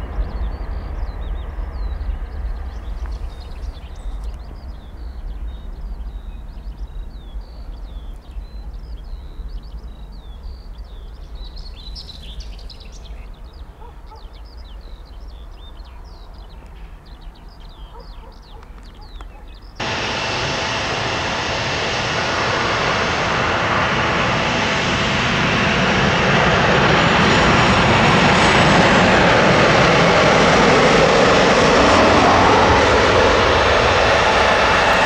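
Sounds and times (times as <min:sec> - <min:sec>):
songbirds chirping and singing: 0:00.1 - 0:19.8
steady low rumble: 0:19.8 - 0:35.0.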